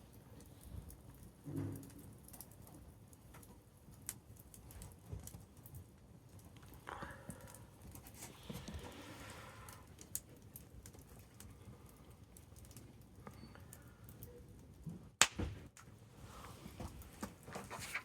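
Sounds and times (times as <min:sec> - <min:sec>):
campfire crackling: 0:01.9 - 0:16.0
sharp loud pop: 0:15.2 - 0:15.6.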